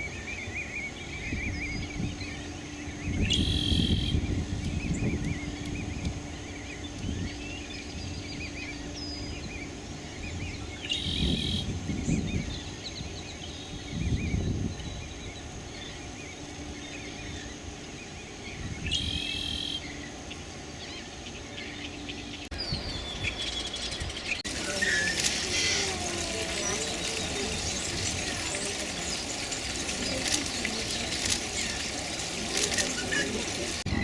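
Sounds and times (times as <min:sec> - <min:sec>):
small birds chirping: 0:00.0 - 0:34.0
high insect drone: 0:24.4 - 0:33.9
harsh bird call: 0:24.5 - 0:33.9.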